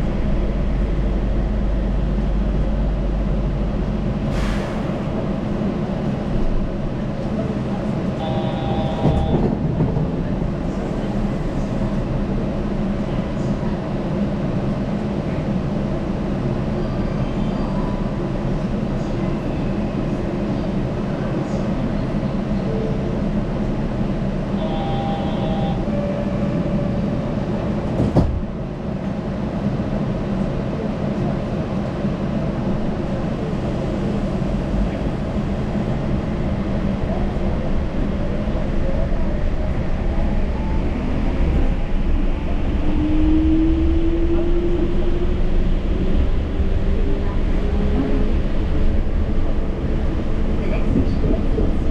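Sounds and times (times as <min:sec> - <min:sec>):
train running rumble and hum: 0:00.0 - 0:51.9
brief high tone: 0:24.6 - 0:26.3.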